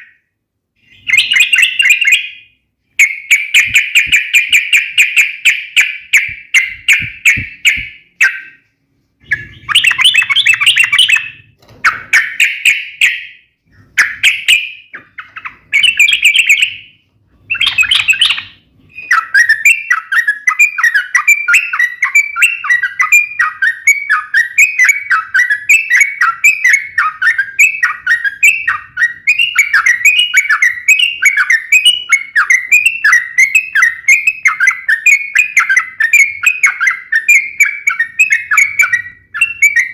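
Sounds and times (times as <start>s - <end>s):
bulbul rapid chattering song: 3.0s - 8.6s, 9.2s - 13.3s, 17.5s - 23.8s.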